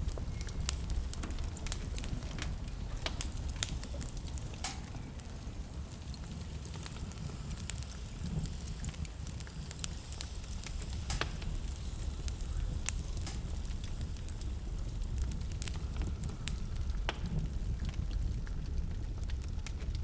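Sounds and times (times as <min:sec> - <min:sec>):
fire crackling and popping: 0:00.0 - 0:20.0
fire flames rumbling: 0:00.0 - 0:20.0.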